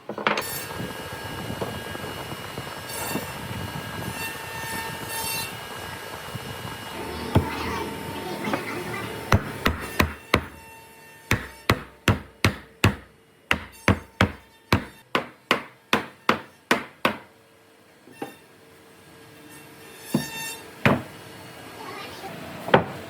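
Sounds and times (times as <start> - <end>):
hammer blows on wood: 9.3 - 10.7.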